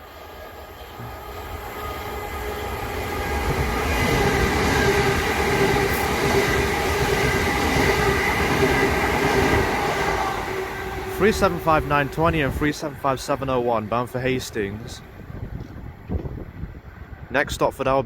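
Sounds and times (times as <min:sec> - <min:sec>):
train wheels rumbling on rail: 0:00.0 - 0:17.3
train whine: 0:00.0 - 0:17.4.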